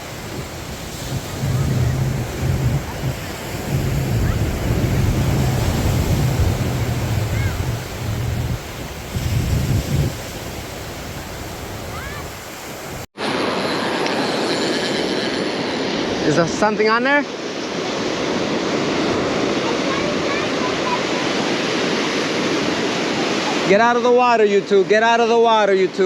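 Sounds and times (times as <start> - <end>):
wind buffeting the microphone: 0.0 - 13.1
ocean surf washing onto beach: 0.0 - 26.0.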